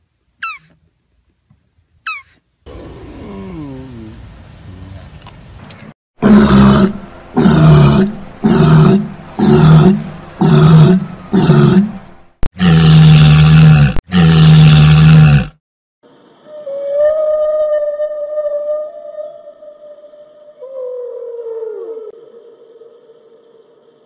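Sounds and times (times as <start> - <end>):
seal moaning calls: 2.1 - 5.0.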